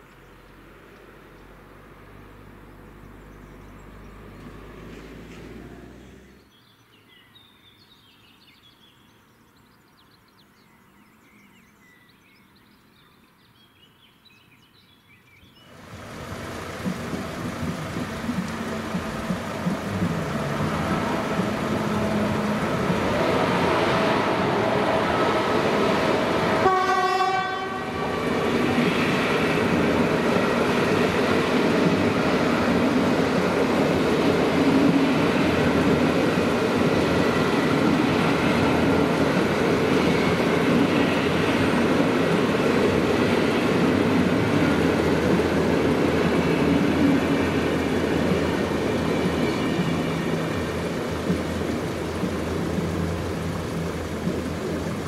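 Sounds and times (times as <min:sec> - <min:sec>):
approaching passenger train: 0:00.0 - 0:13.9, 0:15.1 - 0:55.0
train horn blast: 0:18.4 - 0:25.5, 0:26.2 - 0:28.4.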